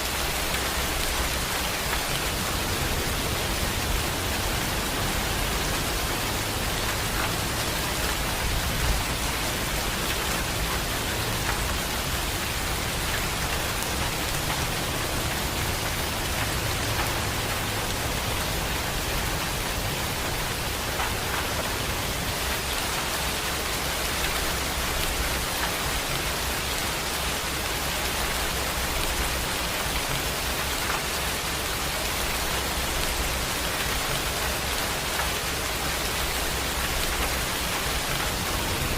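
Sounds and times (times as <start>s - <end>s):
heavy rain pouring: 0.0s - 38.9s
raindrops ticking on a surface: 0.0s - 38.9s.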